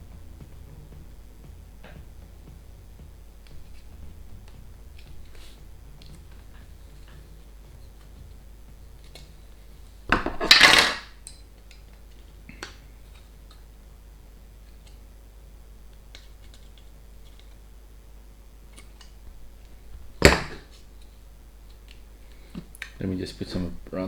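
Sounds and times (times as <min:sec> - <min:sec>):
plastic parts clattering: 0:10.1 - 0:11.1.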